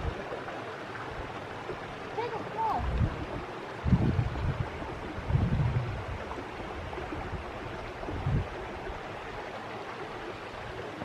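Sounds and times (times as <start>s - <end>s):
wind buffeting microphone: 2.6s - 9.4s.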